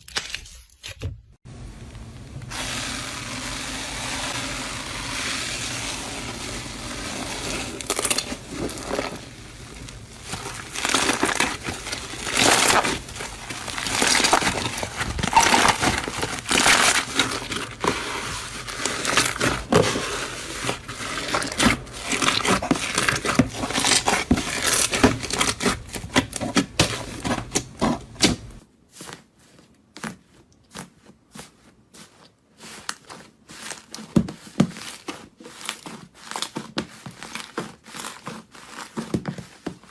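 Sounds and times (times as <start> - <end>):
sharp crackles and crinkles: 1.5 - 28.7
crunchy material crushed by hand: 1.9 - 28.7.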